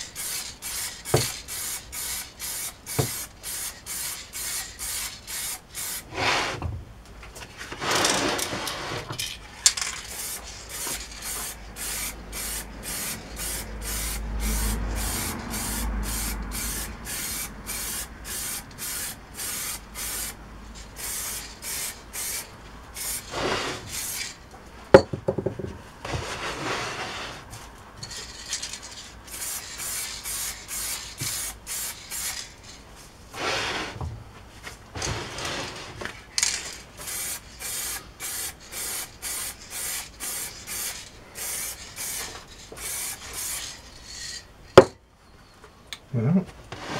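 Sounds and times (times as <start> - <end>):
spray can hissing: 0.0 - 6.1, 9.8 - 24.4, 28.2 - 32.6, 36.4 - 44.4.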